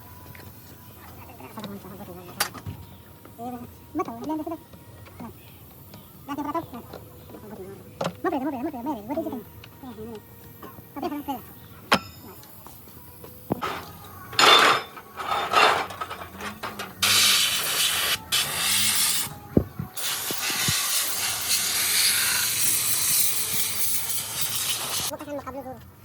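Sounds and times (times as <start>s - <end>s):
loud hissing blasts: 17.0s - 19.3s, 19.9s - 25.1s.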